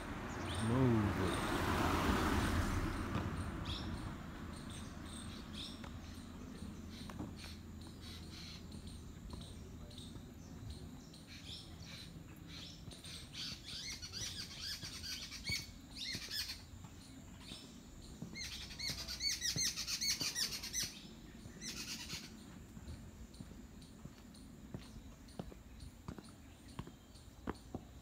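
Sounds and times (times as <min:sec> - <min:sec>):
faint outdoor background noise: 0:00.0 - 0:28.0
small birds chirping: 0:00.0 - 0:28.0.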